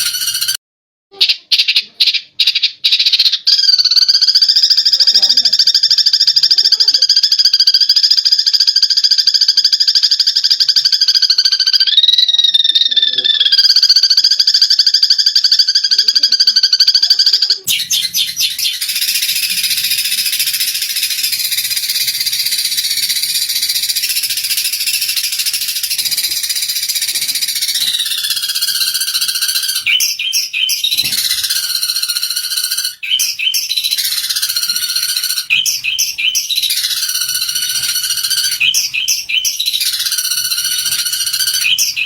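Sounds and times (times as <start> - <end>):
sparrows chattering: 1.3 - 42.0.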